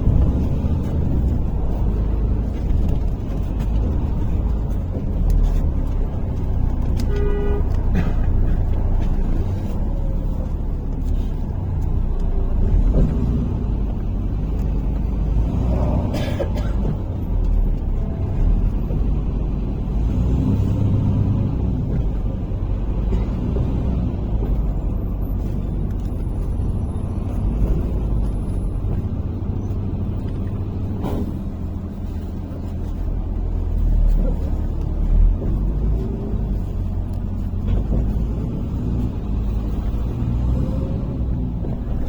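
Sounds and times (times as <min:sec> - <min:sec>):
bus engine and road drone: 0:00.0 - 0:42.0.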